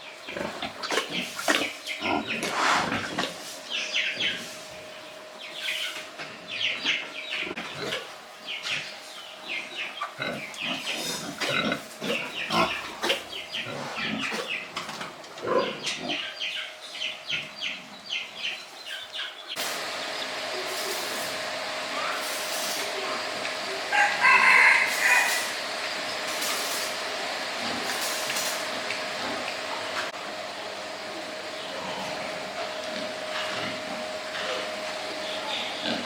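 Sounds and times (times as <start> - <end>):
pigs grunting and squealing: 0.2 - 3.4, 6.8 - 8.1, 9.7 - 16.4, 31.6 - 36.0.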